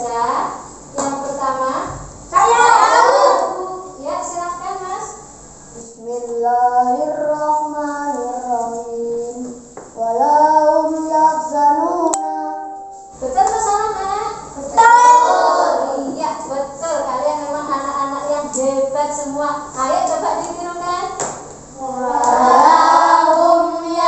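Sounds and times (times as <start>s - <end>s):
children singing together: 2.4s - 3.7s, 10.1s - 13.0s, 14.6s - 16.2s, 21.8s - 24.0s.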